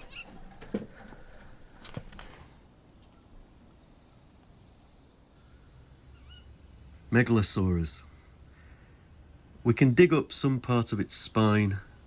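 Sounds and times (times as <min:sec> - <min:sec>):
faint bird chirps: 0:00.0 - 0:00.4, 0:02.9 - 0:06.7.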